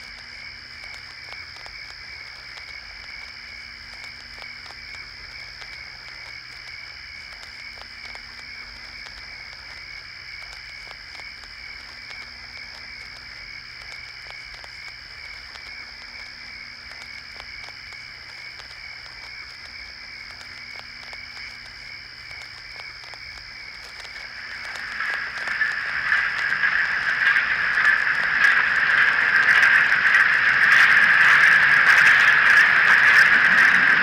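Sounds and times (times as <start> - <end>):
frog clicks and croaks: 0.0 - 34.0
low hum: 24.0 - 34.0.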